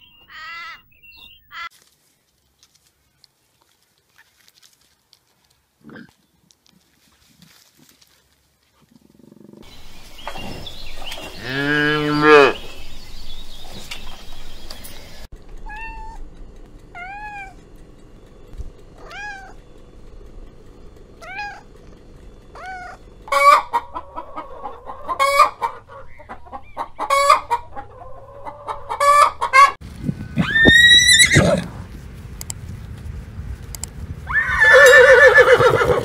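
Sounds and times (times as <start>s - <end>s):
loud animal call: 0.3s - 1.7s, 30.3s - 31.7s, 34.3s - 36.0s
cat meowing: 15.6s - 16.2s, 16.9s - 17.6s, 19.0s - 19.6s, 21.2s - 21.7s, 22.6s - 23.0s
chicken clucking: 22.6s - 29.8s.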